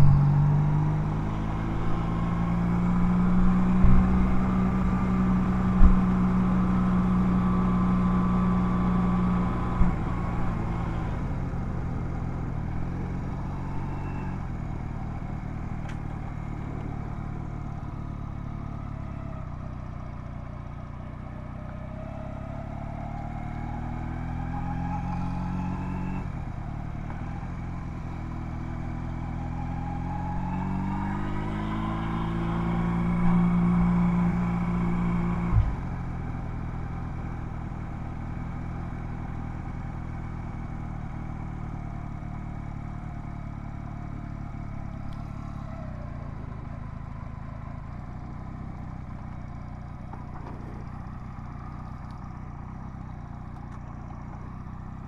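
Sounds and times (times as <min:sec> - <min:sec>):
motorcycle engine: 0:00.0 - 0:55.0
short knocks: 0:50.2 - 0:51.5.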